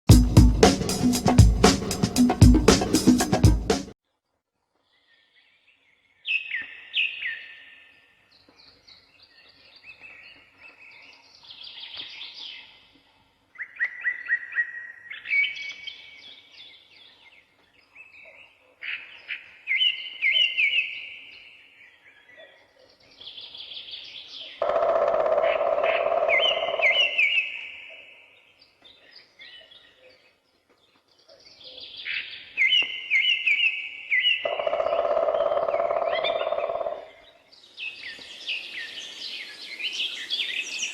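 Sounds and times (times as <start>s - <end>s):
loud low noise: 0.1s - 3.9s
songbirds trilling: 13.6s - 40.9s.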